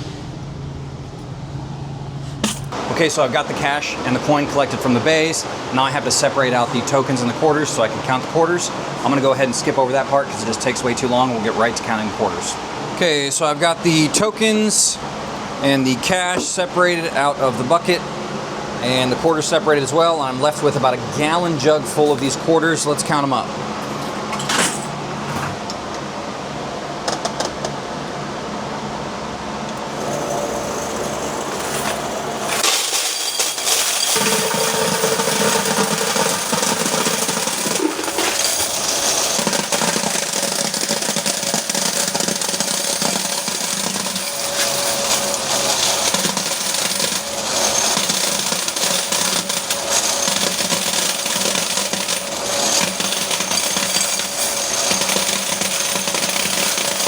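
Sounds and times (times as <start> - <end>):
coin counter rattling coins: 29.9 - 57.0.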